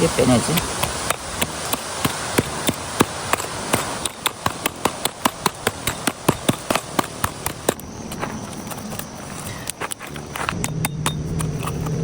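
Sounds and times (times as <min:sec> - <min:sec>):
rapid hand tapping: 0:00.5 - 0:07.8.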